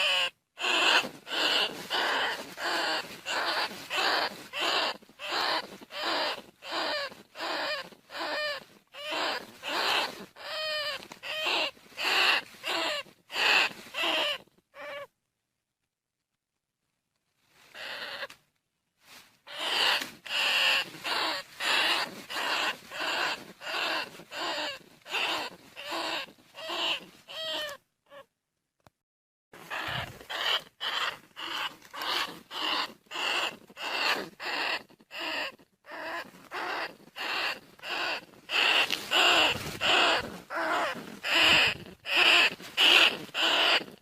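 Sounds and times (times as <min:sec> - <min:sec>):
rat squeaky cries: 0:00.0 - 0:15.1, 0:17.7 - 0:18.3, 0:19.5 - 0:28.3, 0:29.6 - 0:44.0.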